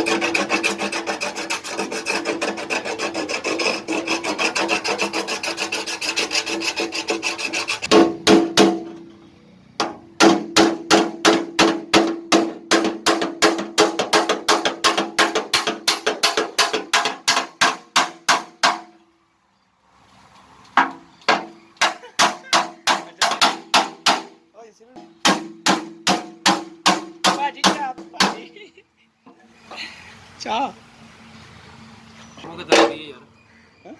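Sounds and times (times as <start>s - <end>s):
hand tool striking sheet metal: 0.0s - 9.0s, 9.8s - 19.0s, 20.8s - 24.4s, 25.0s - 28.4s.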